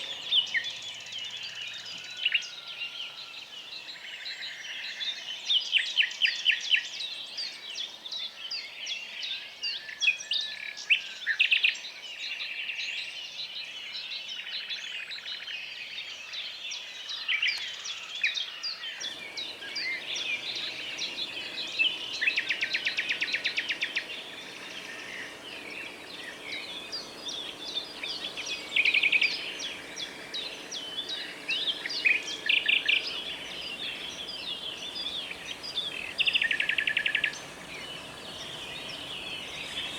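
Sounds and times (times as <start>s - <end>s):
faint steady hiss: 0.0s - 4.5s, 19.0s - 39.9s
songbirds chirping and trilling: 18.4s - 39.9s.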